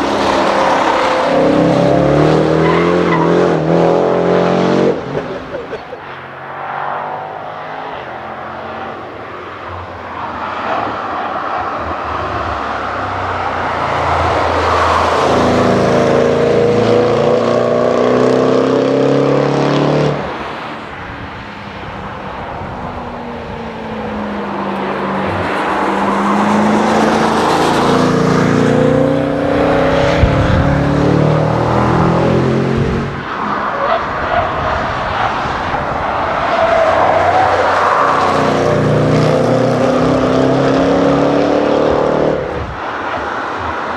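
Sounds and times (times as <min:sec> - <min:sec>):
car exhaust at full throttle: 0:28.6 - 0:33.2.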